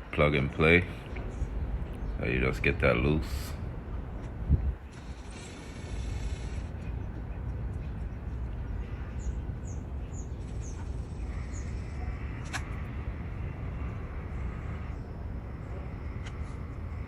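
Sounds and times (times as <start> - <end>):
low background rumble: 0.0 - 17.0
bird chirping: 6.4 - 17.0
sharp clicks: 12.4 - 12.8.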